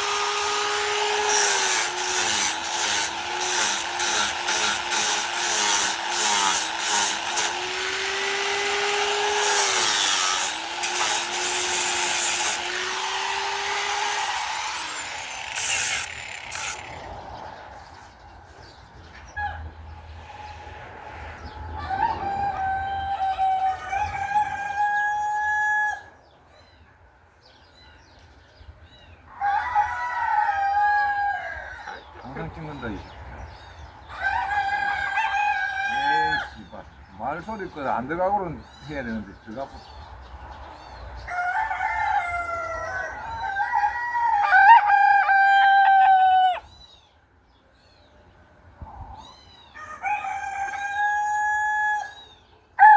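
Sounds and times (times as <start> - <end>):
rooster crowing: 21.6 - 26.2, 29.3 - 32.0, 34.1 - 36.6, 41.2 - 46.7, 49.7 - 52.9.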